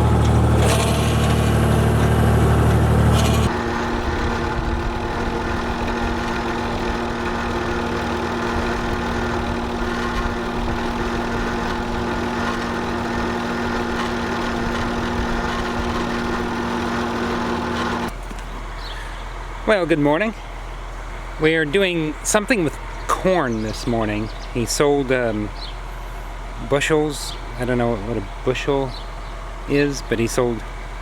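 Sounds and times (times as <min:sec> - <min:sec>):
vehicle engine idling: 0:00.0 - 0:31.0.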